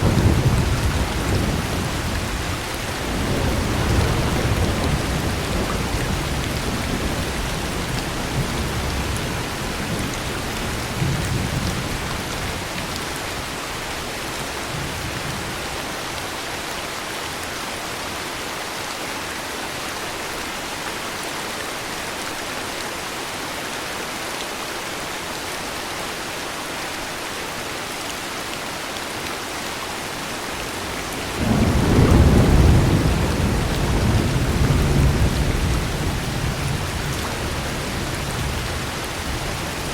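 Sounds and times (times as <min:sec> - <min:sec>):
thunder rumbling: 0:00.0 - 0:13.0, 0:30.5 - 0:39.9
heavy rain: 0:00.0 - 0:39.9.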